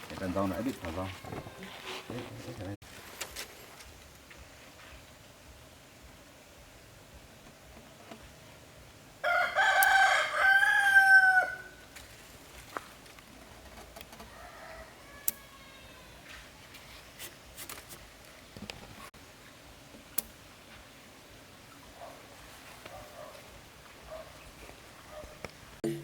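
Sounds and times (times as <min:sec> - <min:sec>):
rooster crowing: 0:09.2 - 0:11.8, 0:14.2 - 0:16.2.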